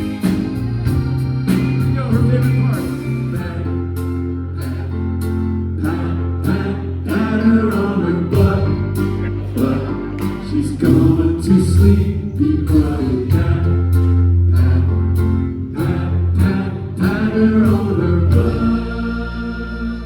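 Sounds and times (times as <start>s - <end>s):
drums beating: 0.0s - 3.6s, 8.4s - 18.9s
rock band playing: 0.0s - 19.0s
group vocal harmonies: 0.0s - 20.0s.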